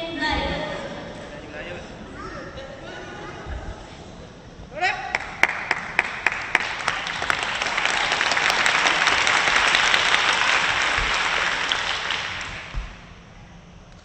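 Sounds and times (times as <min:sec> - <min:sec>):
audience applauding: 0:05.1 - 0:12.8
sharp separate claps: 0:05.1 - 0:13.0.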